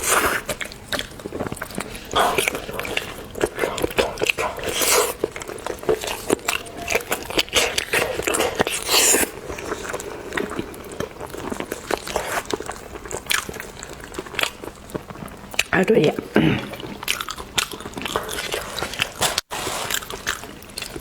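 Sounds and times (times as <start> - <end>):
person chewing seafood: 0.0 - 21.0.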